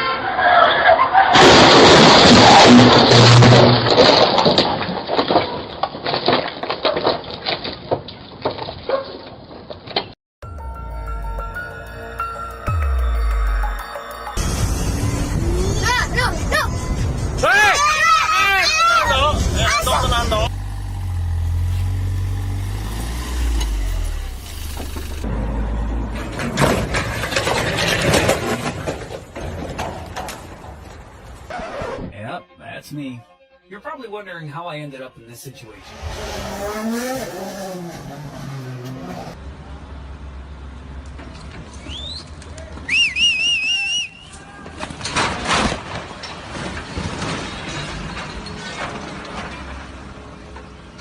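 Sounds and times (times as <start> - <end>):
car crash collision: 1.1 - 6.5, 26.1 - 31.3, 44.8 - 49.9
debris clattering: 1.4 - 8.9, 26.1 - 31.5, 44.8 - 50.7
vehicle engine and road rumble: 8.2 - 31.9, 35.7 - 43.3, 44.6 - 51.0.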